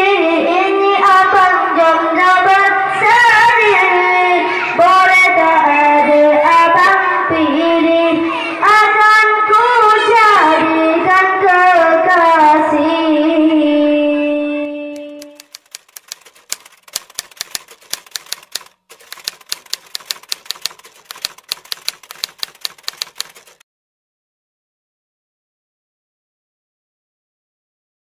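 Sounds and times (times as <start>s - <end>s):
typewriter key clicks: 15.0s - 23.6s.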